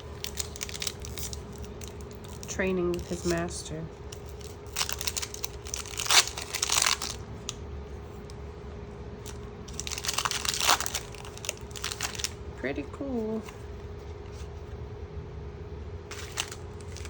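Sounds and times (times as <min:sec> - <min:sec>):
packaging crinkling and rustling: 0:00.0 - 0:08.4, 0:09.2 - 0:12.4, 0:16.1 - 0:17.0
faint steady hum: 0:00.0 - 0:17.0.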